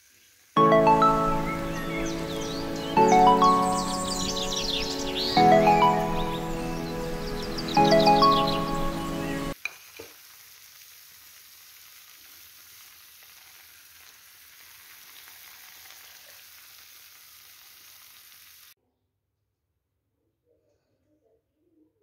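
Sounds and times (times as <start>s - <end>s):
faint sizzle in a pan: 0.0s - 0.6s, 9.5s - 18.8s
background music: 0.6s - 9.6s.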